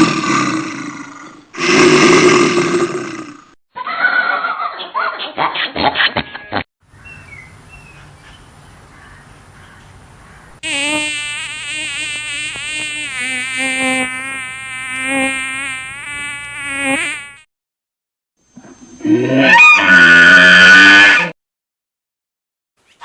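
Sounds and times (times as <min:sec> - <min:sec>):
flying insect buzzing: 0:07.0 - 0:17.5.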